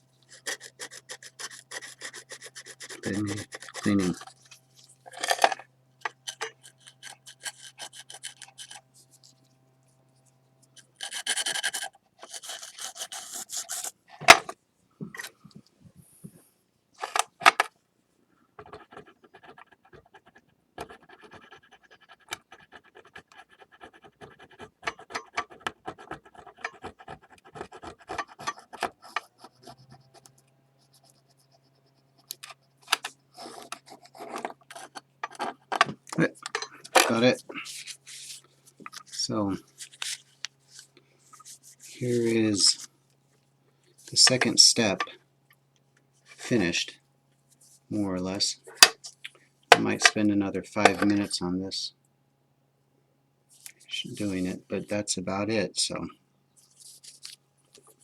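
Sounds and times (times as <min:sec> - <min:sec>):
scraping on ceramic plate: 0:00.3 - 0:09.4, 0:24.6 - 0:30.0, 0:32.9 - 0:39.2.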